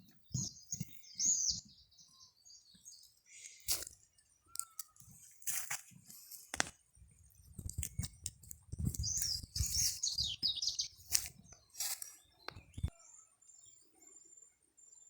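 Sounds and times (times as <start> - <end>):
bird chirping: 0.0 - 5.3, 7.6 - 15.0
scrapes: 7.5 - 12.2.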